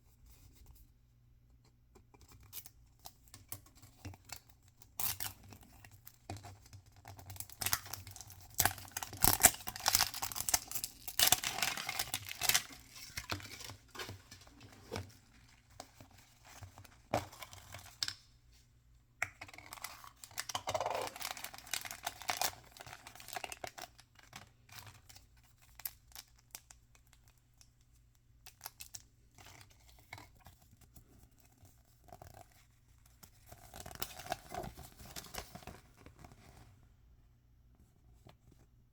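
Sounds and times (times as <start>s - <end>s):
packaging tearing and crinkling: 7.3s - 15.0s, 19.6s - 24.0s.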